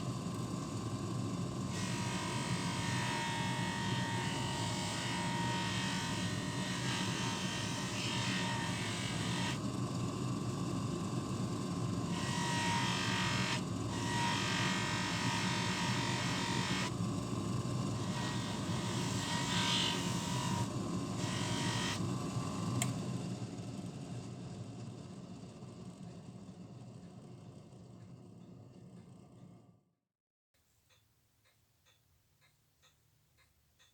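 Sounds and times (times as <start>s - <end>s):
small electric motor running: 0.0s - 22.8s.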